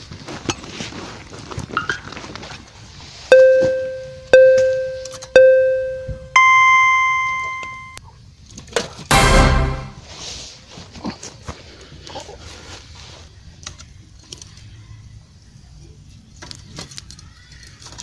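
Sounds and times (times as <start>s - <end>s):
countdown beeping tones: 3.3s - 8.0s, 9.1s - 10.0s.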